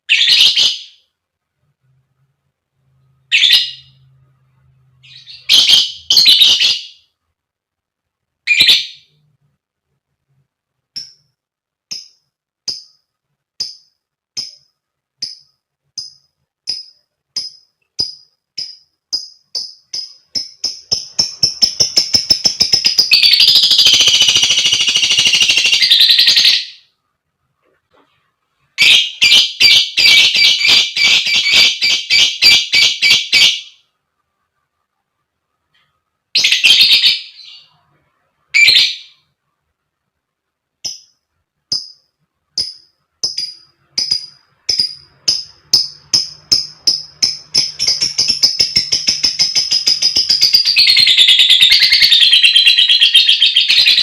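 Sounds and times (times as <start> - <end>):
lovebird squawks and chirps: 0.1 - 1.1, 3.2 - 4.1, 4.9 - 7.1, 8.4 - 9.2, 16.7 - 26.9, 28.8 - 33.8, 36.4 - 37.8, 38.5 - 39.3, 42.6 - 54.0.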